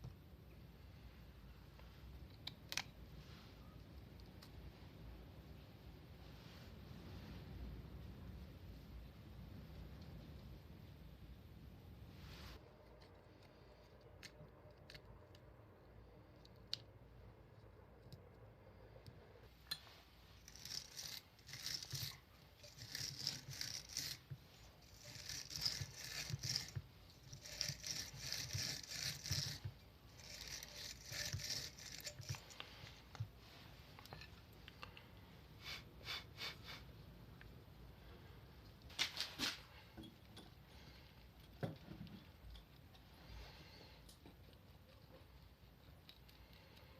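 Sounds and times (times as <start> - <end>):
scrubbing rusty metal: 20.4 - 32.6.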